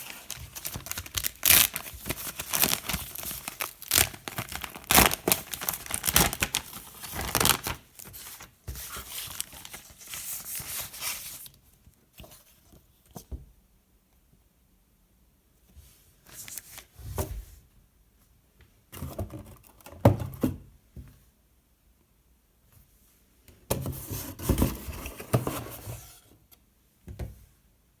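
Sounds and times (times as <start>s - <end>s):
packaging rustling and clattering: 0.0s - 11.4s.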